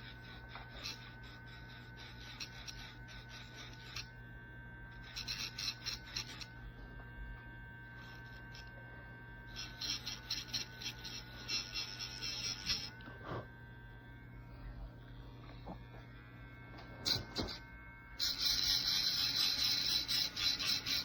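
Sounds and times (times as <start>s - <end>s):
grinder rasping on nail: 0.0s - 6.7s, 7.9s - 13.5s, 17.0s - 17.6s, 18.2s - 21.0s
nail grinder whining: 0.0s - 21.0s.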